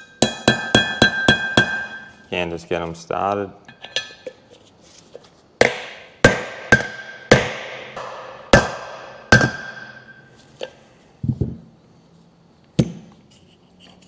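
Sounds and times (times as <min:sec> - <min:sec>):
hammer striking metal plate: 0:00.0 - 0:02.2, 0:05.6 - 0:10.3.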